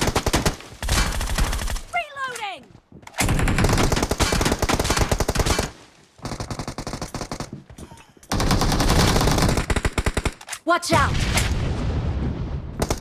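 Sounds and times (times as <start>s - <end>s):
video game automatic gunfire: 3.2s - 7.5s, 8.3s - 10.4s.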